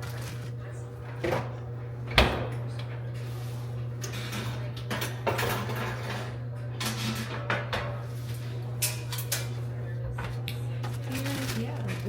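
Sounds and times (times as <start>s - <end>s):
package rustling: 11.0s - 12.0s.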